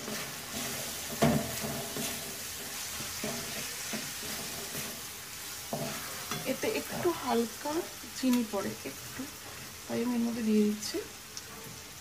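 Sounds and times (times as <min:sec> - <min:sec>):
utensil scraping against pan: 0:00.0 - 0:07.3
spice paste sizzling in oil: 0:00.0 - 0:12.0.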